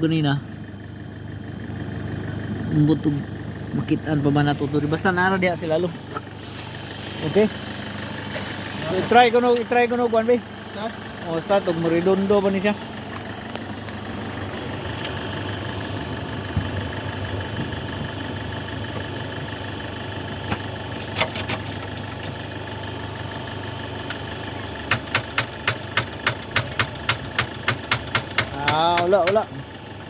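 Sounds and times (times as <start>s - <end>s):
car engine idling: 0.0s - 30.0s
starter solenoid clicking: 20.3s - 22.7s, 23.3s - 30.0s.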